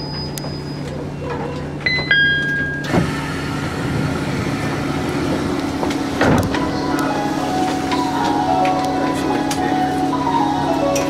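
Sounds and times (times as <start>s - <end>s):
train humming: 2.7s - 11.0s
train doors shutting thud: 2.8s - 9.7s.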